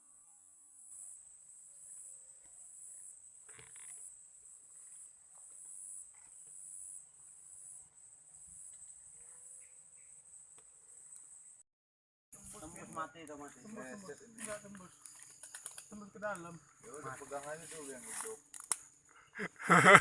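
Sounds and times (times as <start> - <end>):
insects shrilling: 12.4 - 19.3.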